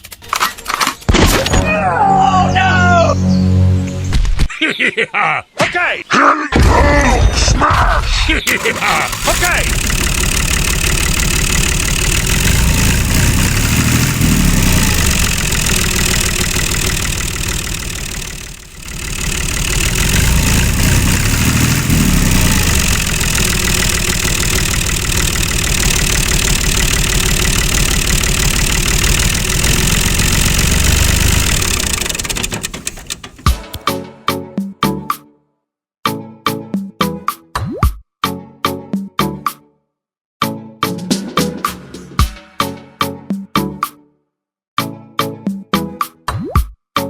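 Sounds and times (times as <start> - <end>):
engine running steadily: 8.5 - 33.8
sharp clicks: 8.5 - 33.8.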